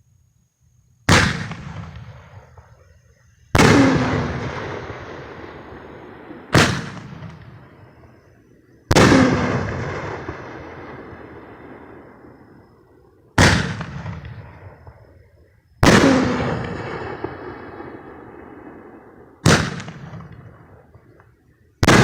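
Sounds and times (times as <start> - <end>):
firework shells booming: 1.1 - 2.8, 3.6 - 7.9, 8.9 - 12.4, 13.4 - 15.0, 15.8 - 21.2.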